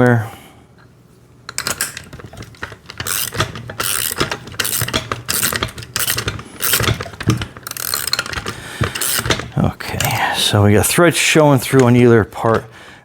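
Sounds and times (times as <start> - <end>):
ratchet wrench clicking: 1.5 - 10.2.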